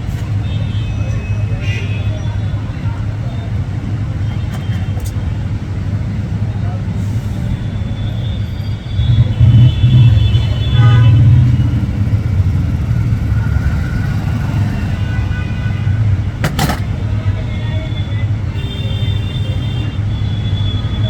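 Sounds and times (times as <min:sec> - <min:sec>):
low engine rumble: 0:09.0 - 0:18.7.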